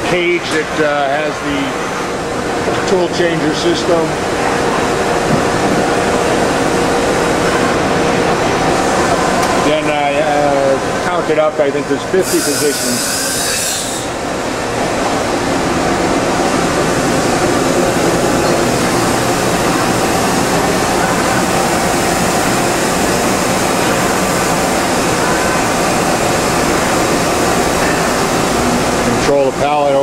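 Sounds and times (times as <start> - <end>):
machining center running: 0.0 - 30.0
brief high hiss: 12.2 - 14.1.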